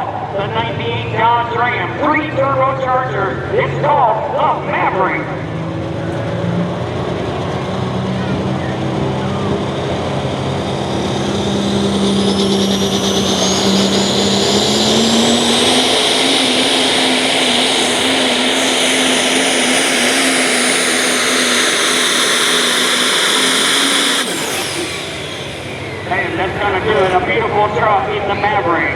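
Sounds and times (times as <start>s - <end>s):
diesel truck engine at full throttle: 0.0s - 28.9s
turbocharger whistle: 8.1s - 28.4s.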